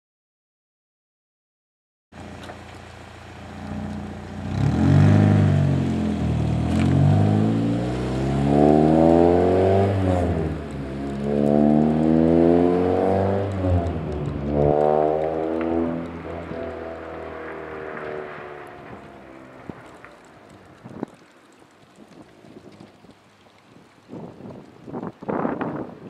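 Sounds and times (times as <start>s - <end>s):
car engine idling and revving: 2.2s - 21.0s.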